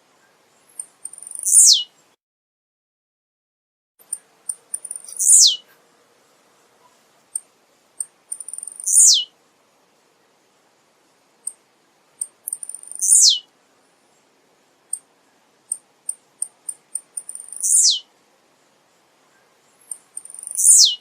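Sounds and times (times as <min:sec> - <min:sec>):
high ticking bird notes: 0:00.7 - 0:01.9, 0:04.0 - 0:05.6, 0:07.4 - 0:09.3, 0:12.2 - 0:13.4, 0:15.7 - 0:18.1, 0:19.7 - 0:21.0
bird song falling in pitch: 0:20.5 - 0:21.0.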